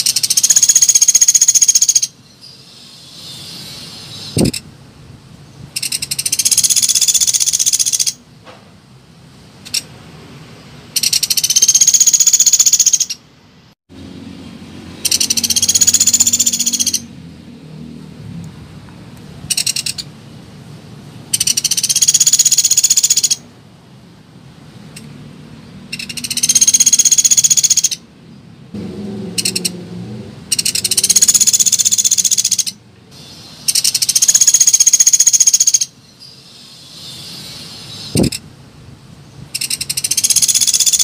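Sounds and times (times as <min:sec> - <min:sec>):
short woodpecker calls: 0:00.0 - 0:02.2, 0:05.8 - 0:08.2, 0:11.0 - 0:13.2, 0:15.0 - 0:17.1, 0:19.5 - 0:20.1, 0:21.3 - 0:23.4, 0:25.9 - 0:28.0, 0:30.5 - 0:38.4, 0:39.5 - 0:41.0
woodpecker rapid trills: 0:00.0 - 0:02.2, 0:05.8 - 0:08.2, 0:11.0 - 0:13.2, 0:15.0 - 0:17.1, 0:21.4 - 0:23.4, 0:25.9 - 0:28.0, 0:30.5 - 0:32.8, 0:33.6 - 0:36.0, 0:39.6 - 0:41.0.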